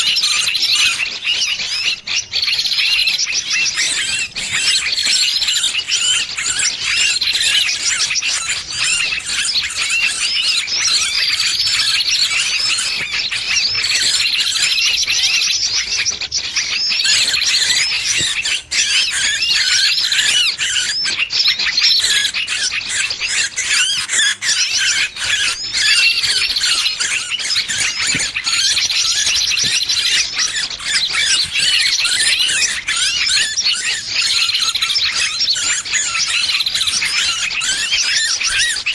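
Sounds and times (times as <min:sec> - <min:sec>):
small bird distress calls: 0:00.0 - 0:38.9.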